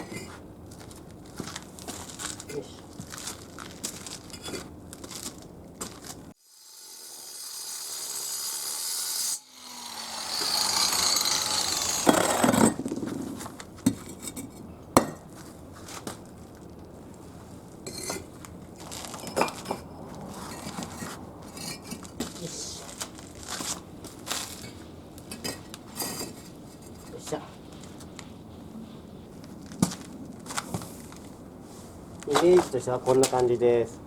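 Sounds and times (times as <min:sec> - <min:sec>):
harsh scraping hiss: 0:06.4 - 0:14.3
bricks clinking and knocking: 0:11.2 - 0:15.4, 0:19.2 - 0:19.9, 0:25.3 - 0:26.9.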